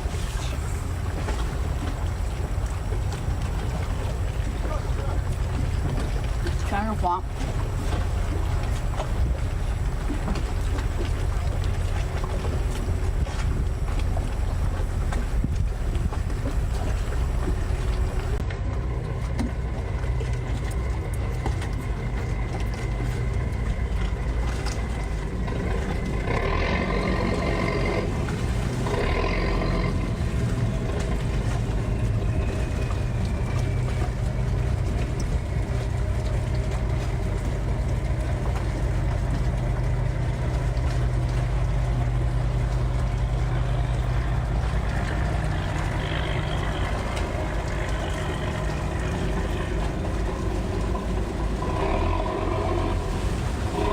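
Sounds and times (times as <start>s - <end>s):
boat engine humming: 0.0s - 53.9s.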